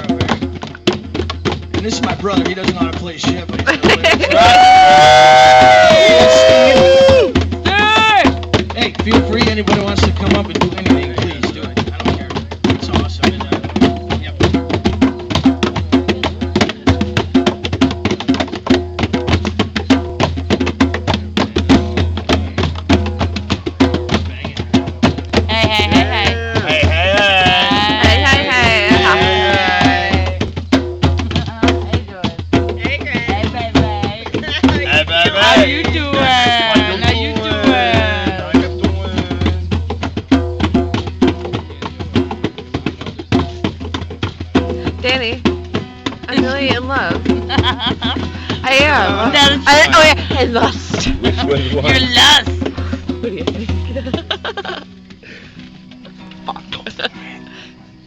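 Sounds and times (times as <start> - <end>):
live band playing fast music: 0.0 - 54.8, 56.0 - 57.2
rapid percussion strikes: 0.0 - 57.5.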